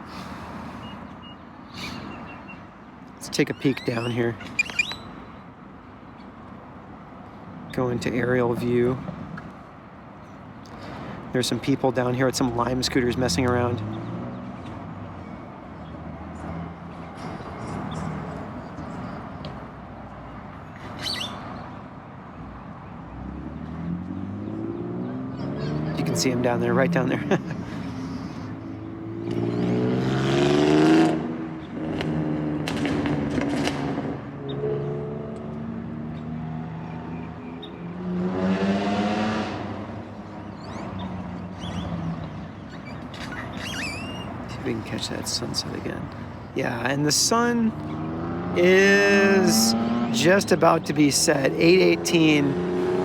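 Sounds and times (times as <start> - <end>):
traffic rumble: 0.0 - 53.0
birds chirping: 0.2 - 30.3, 34.3 - 38.4, 39.8 - 53.0
bird chirp: 0.8 - 5.5, 13.8 - 21.9, 36.1 - 38.1, 40.0 - 48.6
vehicle engine accelerating: 23.1 - 27.6, 28.7 - 42.4, 46.8 - 53.0
car passing by: 23.1 - 37.2, 37.8 - 40.1, 44.6 - 53.0.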